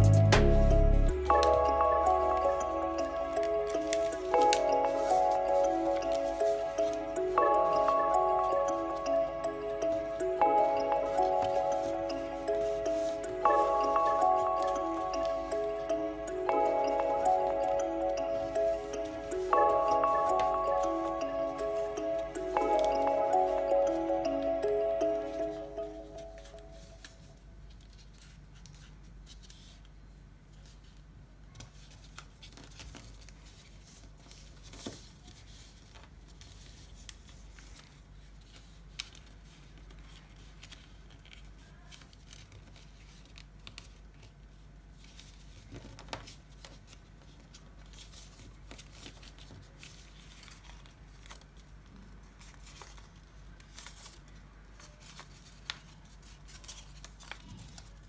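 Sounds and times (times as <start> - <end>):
paper rustling and crinkling: 30.5 - 58.0.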